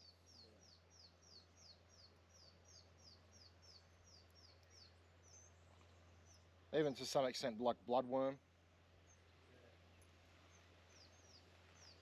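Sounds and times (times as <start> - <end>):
bird chirping: 0.0 - 6.5, 9.9 - 12.0.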